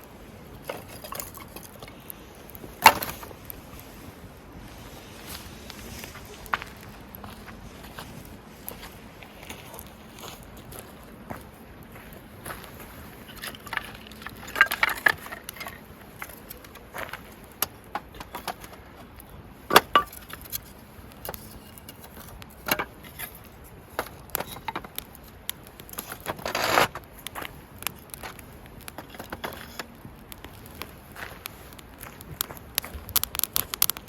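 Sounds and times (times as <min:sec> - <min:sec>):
wood fire crackling and popping: 0:00.0 - 0:34.0.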